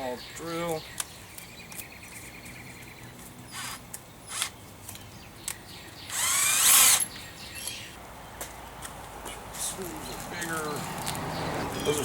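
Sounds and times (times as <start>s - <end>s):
power drill spinning up: 6.1s - 7.1s.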